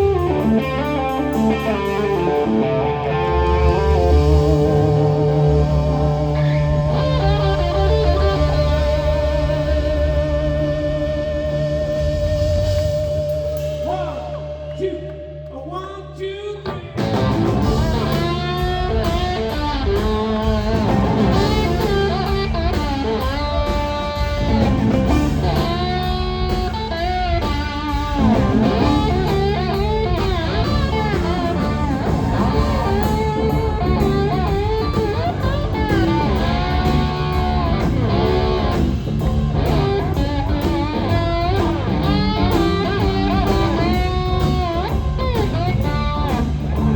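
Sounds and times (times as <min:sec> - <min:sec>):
live blues-rock band playing: 0:00.0 - 0:15.4, 0:16.6 - 0:46.9
electric guitar lines: 0:00.0 - 0:15.6, 0:16.6 - 0:46.9.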